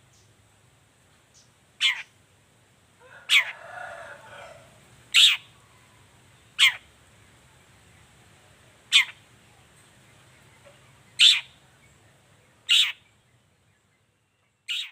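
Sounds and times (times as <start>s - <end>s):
bird giving sharp calls: 1.8s - 2.2s, 3.2s - 5.6s, 6.6s - 6.9s, 8.9s - 9.2s, 11.1s - 11.6s, 12.6s - 13.1s, 14.7s - 14.9s.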